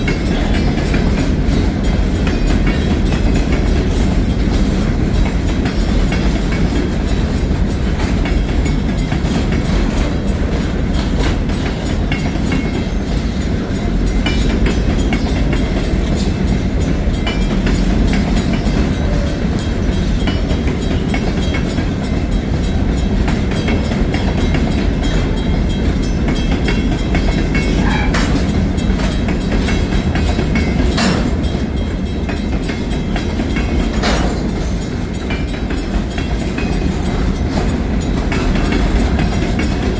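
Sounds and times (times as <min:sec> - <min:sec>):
freight train rumbling past: 0:00.0 - 0:39.9
wheels clacking over rail joints: 0:00.0 - 0:39.9
sharp knocks: 0:34.0 - 0:34.6.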